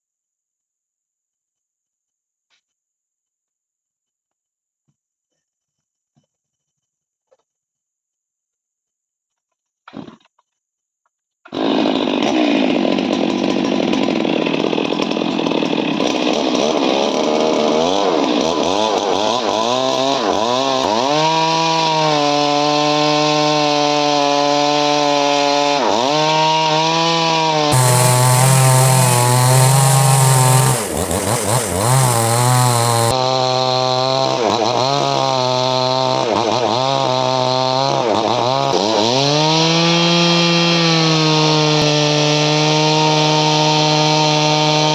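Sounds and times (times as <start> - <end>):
chainsaw cutting wood: 25.9 - 44.9.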